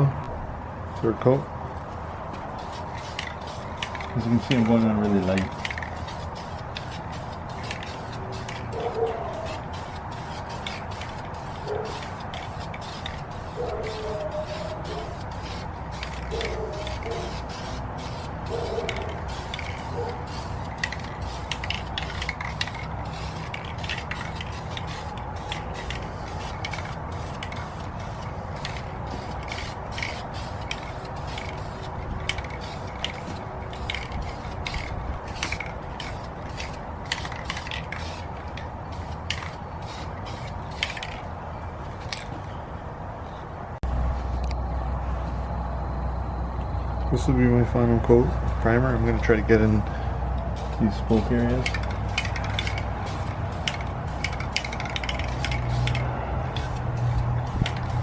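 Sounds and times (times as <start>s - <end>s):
aerosol spray bursts: 2.6s - 38.3s.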